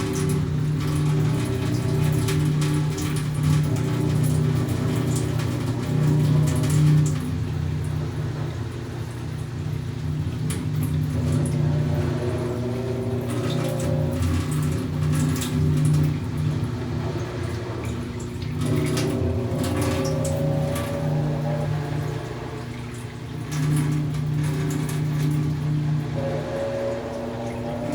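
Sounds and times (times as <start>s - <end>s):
washing machine motor hum: 0.0s - 27.9s
water sloshing: 9.0s - 27.9s.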